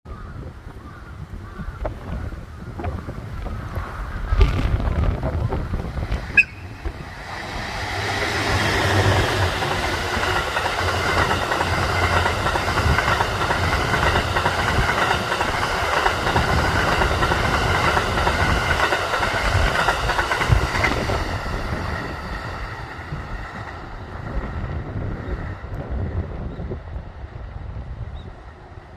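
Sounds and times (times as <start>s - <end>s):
train wheels rumbling on rails: 0.2s - 28.9s.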